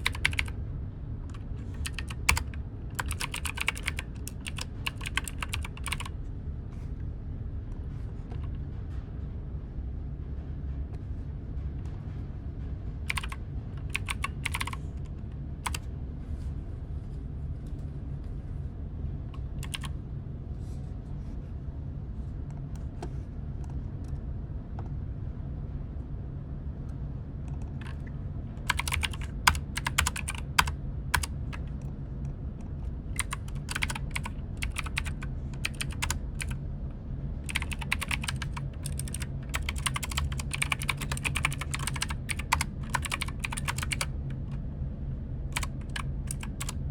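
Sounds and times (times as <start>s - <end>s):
typing on computer keyboard: 0.0s - 0.5s, 1.3s - 6.1s, 13.1s - 14.8s, 15.6s - 15.8s, 19.4s - 19.9s, 27.7s - 31.8s, 33.2s - 36.6s, 37.4s - 44.6s, 45.5s - 46.8s
steady low hum: 0.0s - 46.9s.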